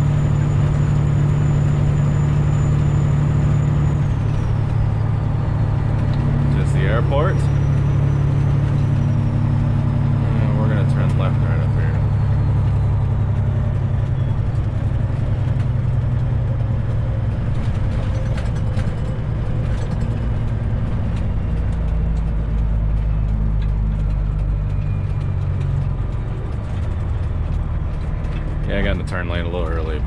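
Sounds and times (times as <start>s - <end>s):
truck diesel engine running: 0.0s - 30.0s.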